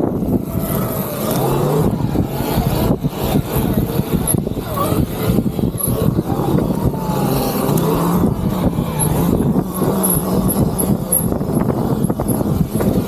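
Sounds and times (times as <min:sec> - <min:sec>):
electric dirt bike riding: 0:00.0 - 0:13.0
wind noise: 0:00.0 - 0:13.0.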